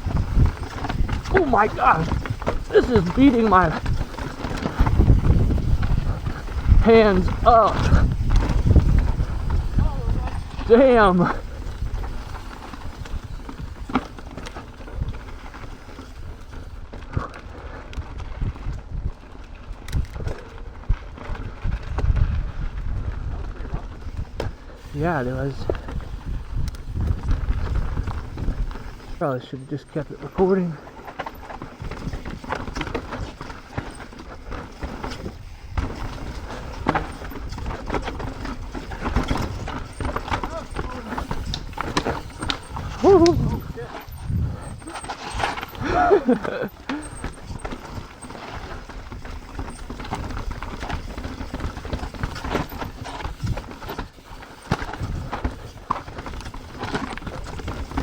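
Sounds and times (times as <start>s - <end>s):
tyres rumbling on dirt: 0.0s - 17.7s, 23.0s - 58.0s
mountain bike rattling: 0.0s - 58.0s
chain and frame slapping: 30.2s - 48.9s.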